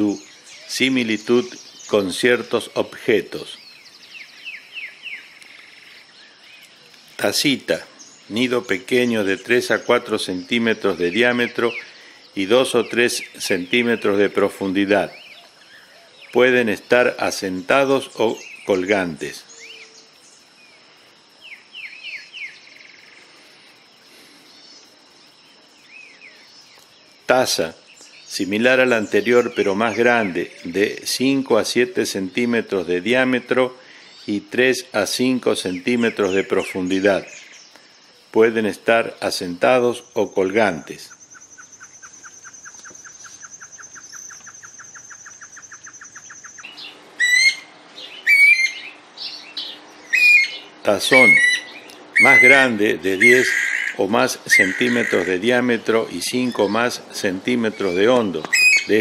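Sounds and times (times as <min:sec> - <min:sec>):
bird chirps and trill: 0:00.0 - 0:23.4, 0:25.7 - 0:59.0
bird whistled calls: 0:41.1 - 0:55.4, 0:57.7 - 0:59.0
bird hooting notes: 0:41.1 - 0:59.0.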